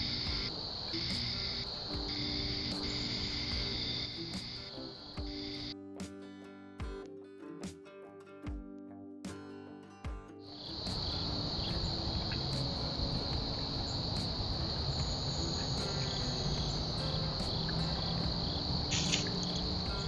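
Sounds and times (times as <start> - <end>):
insect trilling: 10.7 - 20.0.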